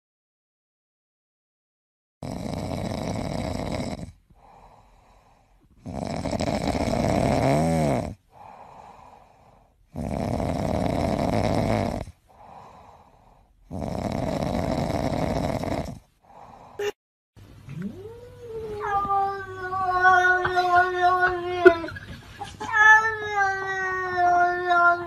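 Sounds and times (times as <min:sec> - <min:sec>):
cat snoring: 0:02.2 - 0:05.2, 0:05.8 - 0:16.6
cat breathing: 0:04.3 - 0:05.8, 0:08.3 - 0:09.9, 0:12.3 - 0:13.7.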